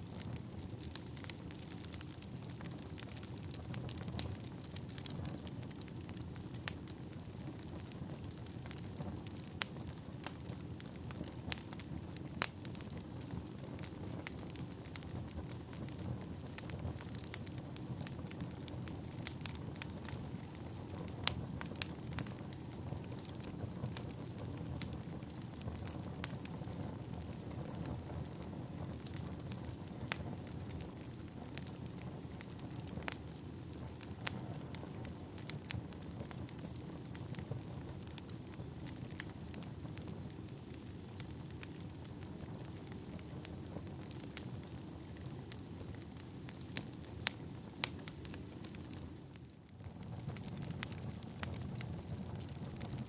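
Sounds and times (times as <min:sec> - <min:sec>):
logs crackling and popping: 0:00.0 - 0:53.0
wood fire burning: 0:00.0 - 0:53.0
faint high whistle: 0:36.9 - 0:46.0.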